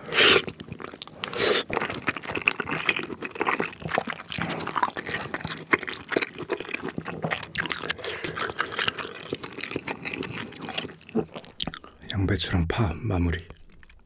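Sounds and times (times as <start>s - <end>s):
chewing with wet mouth clicks: 0.3s - 12.0s, 13.4s - 14.0s.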